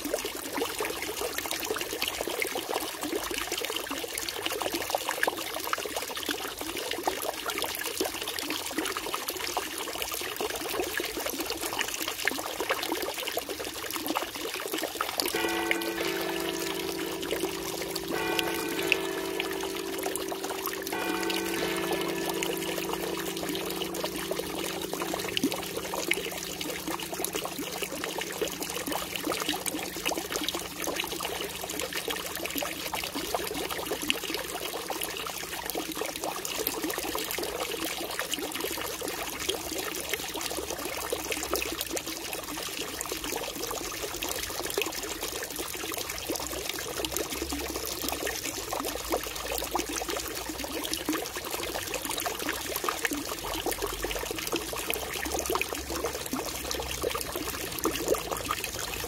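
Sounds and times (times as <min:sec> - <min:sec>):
running water splashing: 0:15.3 - 0:34.1.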